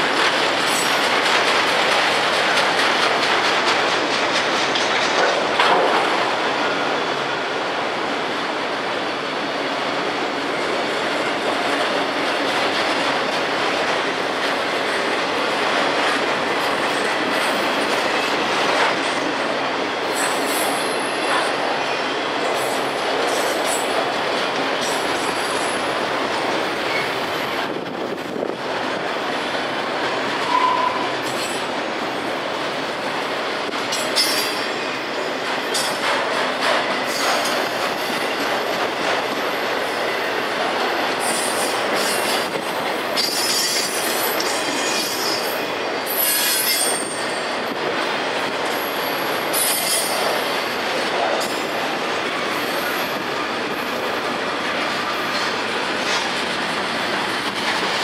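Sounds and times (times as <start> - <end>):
train wheels rumbling on track: 0.0 - 58.0
high-pitched wheel squeal: 30.4 - 31.1.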